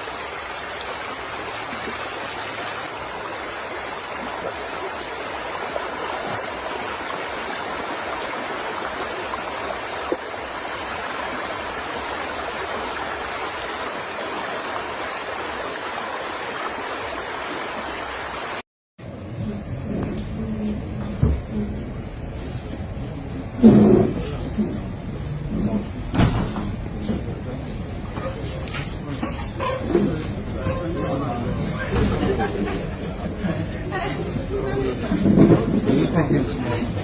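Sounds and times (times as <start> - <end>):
floodwater rushing: 0.0 - 18.6.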